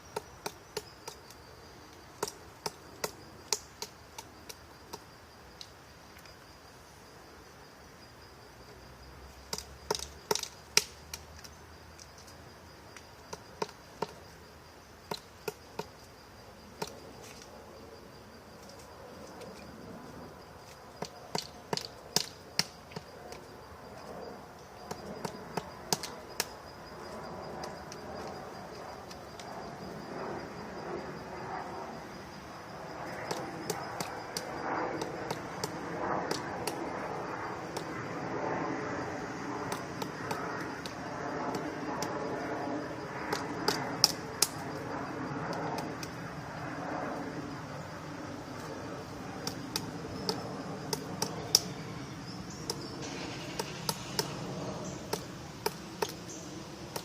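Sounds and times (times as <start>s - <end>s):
woodpecker tapping on wood: 0.0s - 1.4s, 49.4s - 51.8s, 52.6s - 54.4s, 55.0s - 57.0s
high insect trill: 0.0s - 57.0s.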